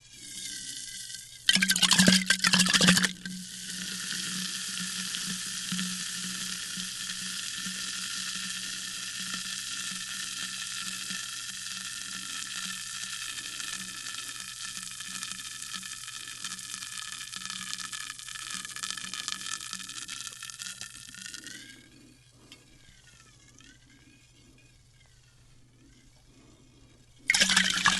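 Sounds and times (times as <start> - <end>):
sparkling water fizzing: 0.2 - 21.3, 27.3 - 27.9.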